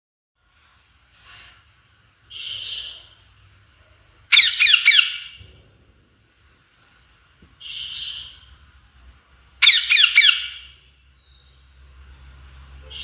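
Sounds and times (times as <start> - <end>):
parrot squawking: 2.3 - 3.2, 4.3 - 5.4, 7.6 - 8.5, 9.6 - 10.8.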